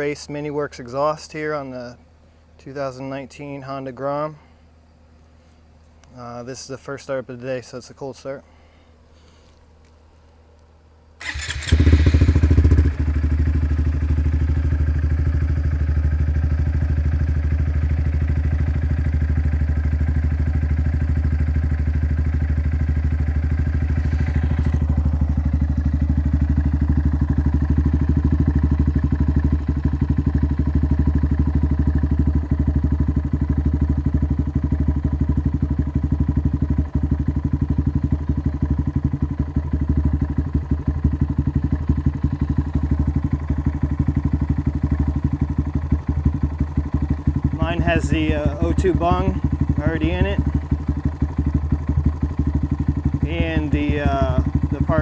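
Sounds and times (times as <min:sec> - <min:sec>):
motorcycle engine starting and idling: 0:11.2 - 0:55.0.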